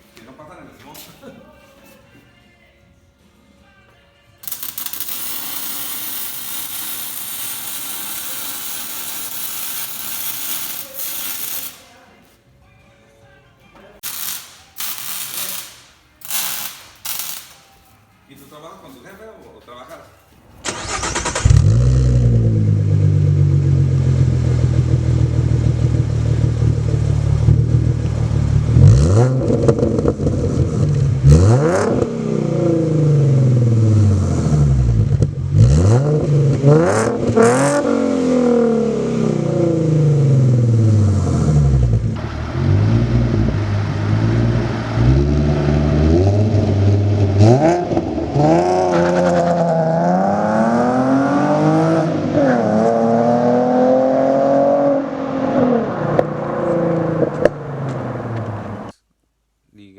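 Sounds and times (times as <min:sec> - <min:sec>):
car engine starting: 0:20.5 - 0:59.0
car engine revving: 0:20.6 - 0:59.0.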